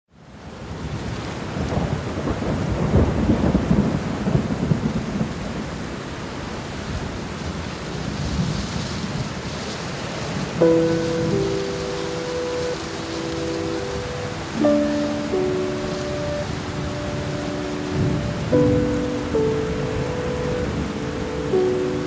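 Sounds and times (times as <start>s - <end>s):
steady rain falling: 0.1s - 22.0s
low rumble of thunder: 0.9s - 6.0s.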